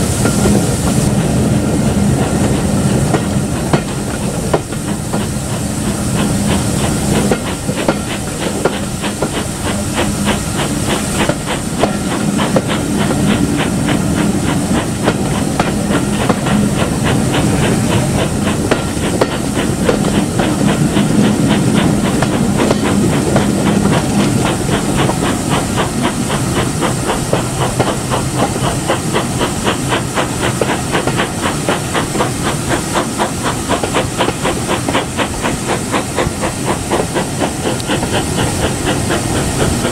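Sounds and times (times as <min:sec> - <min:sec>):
steam hissing: 0:00.0 - 0:39.9
locomotive rhythmic beats: 0:00.1 - 0:39.9.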